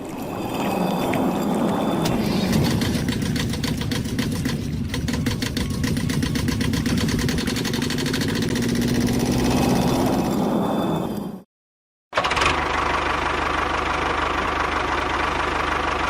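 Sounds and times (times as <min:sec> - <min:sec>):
small engine knocking: 0:02.2 - 0:09.9.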